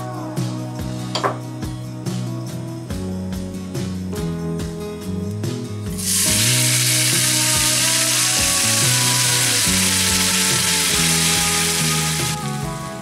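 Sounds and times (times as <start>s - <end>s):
background music: 0.0s - 13.0s
vegetables sizzling in oil: 6.0s - 12.6s.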